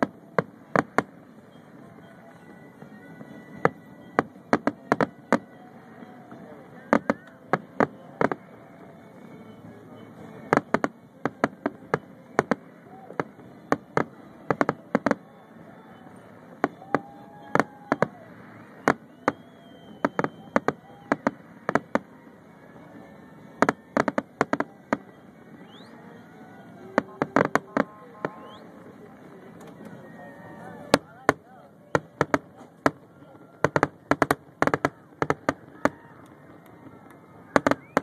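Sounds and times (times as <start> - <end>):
fireworks bursting: 0.0 - 38.0
people's voices: 0.0 - 38.0.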